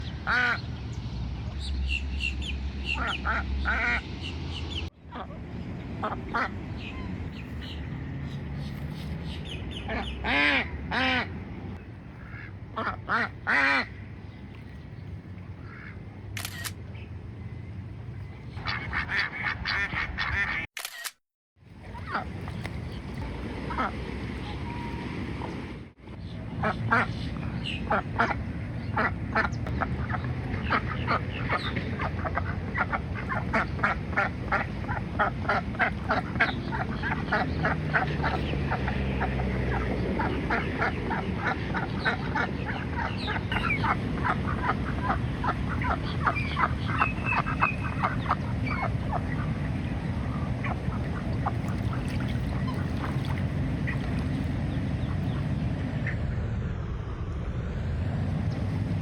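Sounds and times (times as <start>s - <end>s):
low rumble: 41.0s - 59.0s.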